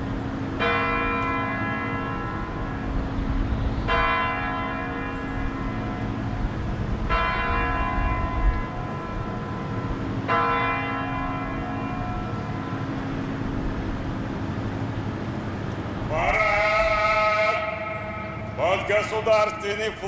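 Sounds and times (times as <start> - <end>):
large tower bell striking: 0.6 - 3.1, 3.9 - 13.6, 17.6 - 19.6.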